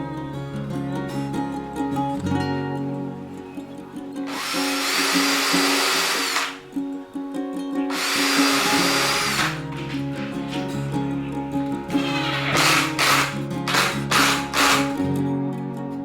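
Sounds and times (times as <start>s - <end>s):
acoustic guitar music: 0.0s - 16.0s
power drill whining: 4.3s - 6.7s, 7.9s - 11.0s, 11.9s - 15.0s.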